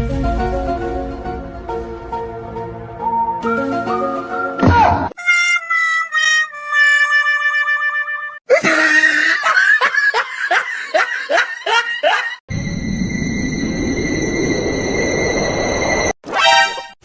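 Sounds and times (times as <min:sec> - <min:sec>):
comic background music: 0:00.0 - 0:08.4, 0:16.3 - 0:17.0.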